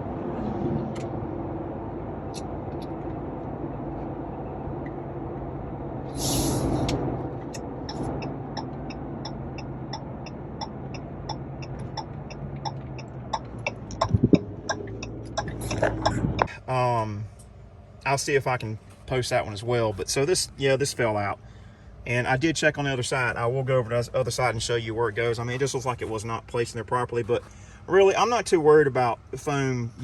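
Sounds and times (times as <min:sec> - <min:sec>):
truck engine and road noise: 0:00.0 - 0:30.0
short hiss: 0:06.1 - 0:07.0.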